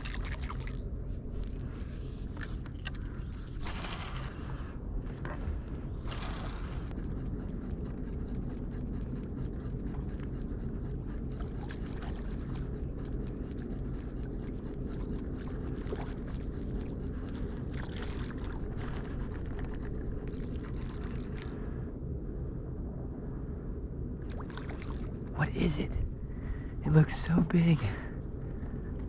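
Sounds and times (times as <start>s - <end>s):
low rumble of kayak on water: 0.0s - 22.0s
water hiss: 3.6s - 4.4s, 6.0s - 6.9s.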